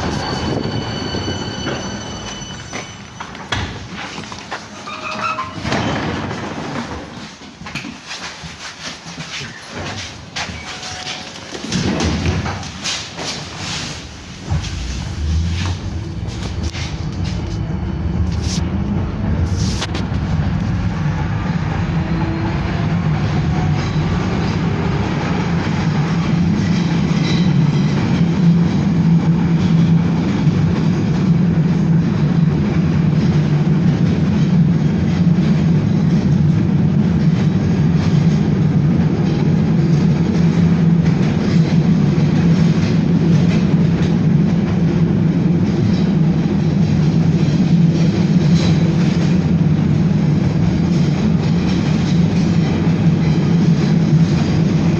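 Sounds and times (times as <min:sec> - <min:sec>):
tram motor and wheel hum: 0:00.0 - 0:54.9
rail-joint clacks: 0:45.6 - 0:54.9.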